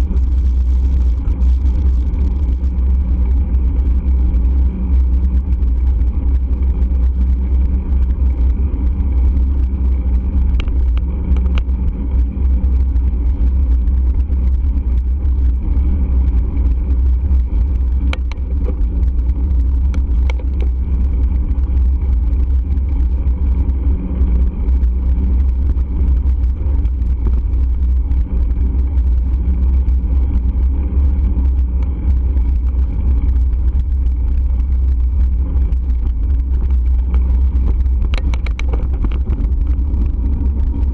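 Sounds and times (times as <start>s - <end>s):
road hum: 0.0s - 40.9s
wind rumble on microphone: 0.0s - 40.9s
faint clicks: 10.4s - 11.7s, 17.9s - 18.8s, 36.6s - 40.1s.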